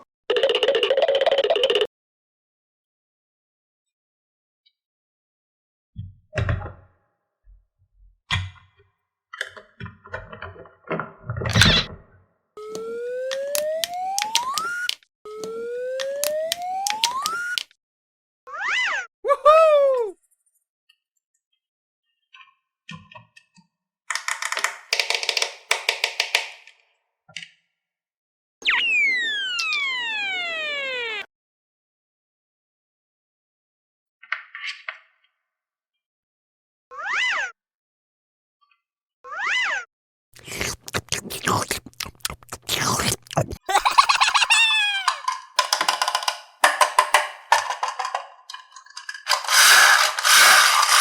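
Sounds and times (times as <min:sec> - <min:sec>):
scattered clicks: 0:12.7 - 0:17.7, 0:45.1 - 0:51.0
loud falling whistle: 0:28.6 - 0:31.2.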